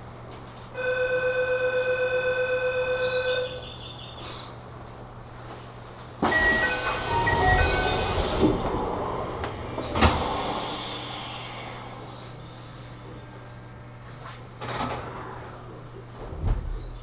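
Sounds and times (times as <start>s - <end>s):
train doors hissing and closing: 6.1s - 13.4s, 14.1s - 17.0s
pulsing door warning chime: 6.2s - 10.9s.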